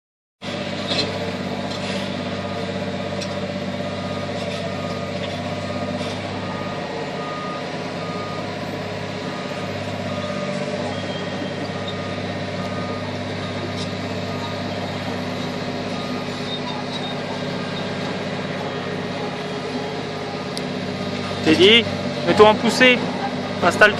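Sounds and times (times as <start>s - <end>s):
heavy machinery engine running: 0.4s - 23.9s
reversing alarm beeping: 2.2s - 20.6s.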